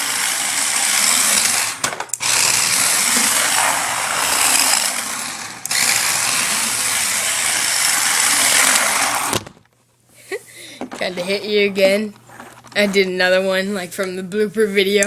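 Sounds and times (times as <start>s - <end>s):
toy car motor whirring: 0.0s - 9.4s.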